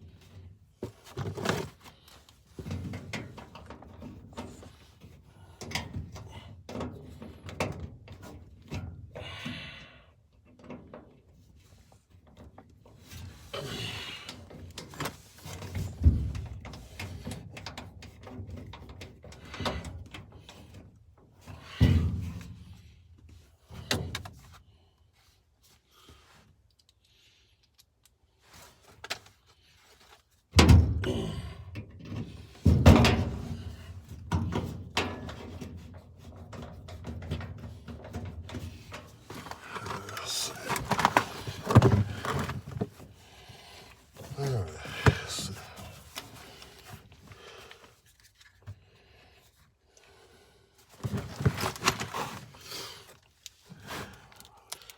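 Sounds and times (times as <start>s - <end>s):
handling and scraping: 0.8s - 5.2s, 35.2s - 48.8s, 50.8s - 54.6s
knocks and thumps: 39.3s - 43.0s.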